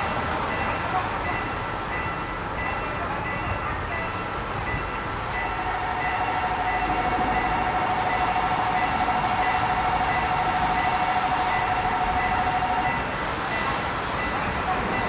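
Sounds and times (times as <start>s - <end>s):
crossing warning signal: 0.0s - 15.0s
train passing rushing: 0.0s - 15.0s
high-pitched tone: 5.4s - 15.0s.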